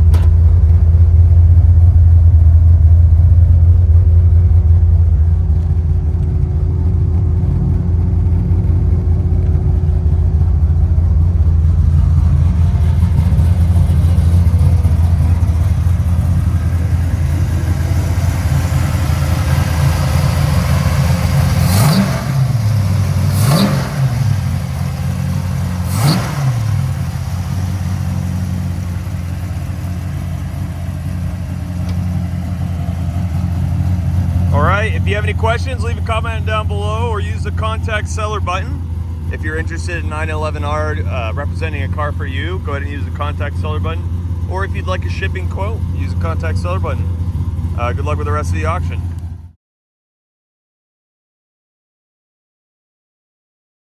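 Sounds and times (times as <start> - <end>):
engine revving: 0.0 - 49.4
car engine idling: 0.0 - 49.6.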